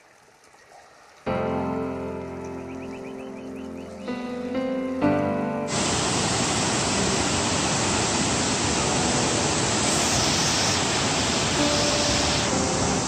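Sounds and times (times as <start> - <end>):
waterfall roaring: 5.7 - 13.0.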